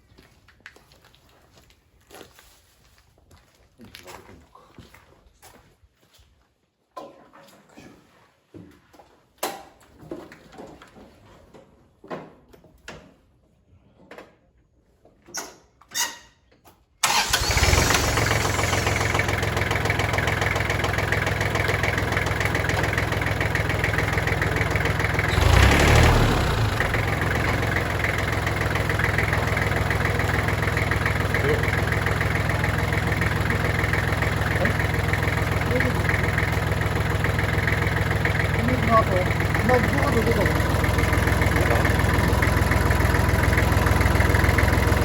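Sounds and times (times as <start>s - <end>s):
tractor engine running: 17.0s - 45.0s.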